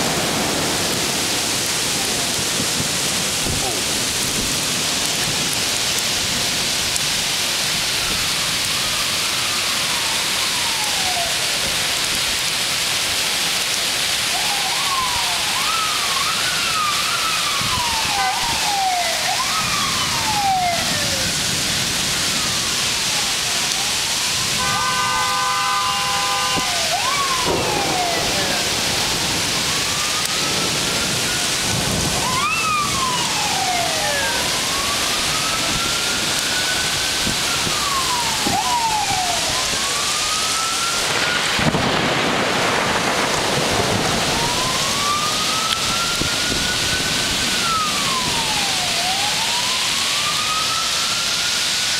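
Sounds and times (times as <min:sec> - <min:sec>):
emergency vehicle sirens wailing: 0:00.0 - 0:51.9
heavy rain: 0:00.0 - 0:51.9
wind noise: 0:17.4 - 0:18.9, 0:24.4 - 0:39.9, 0:41.1 - 0:48.7
vehicle horn: 0:24.5 - 0:26.7.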